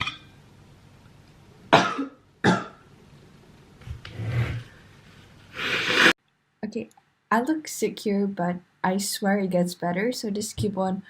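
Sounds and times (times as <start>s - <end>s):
woman coughing: 1.8s - 2.7s
woman clearing her throat: 1.8s - 2.8s.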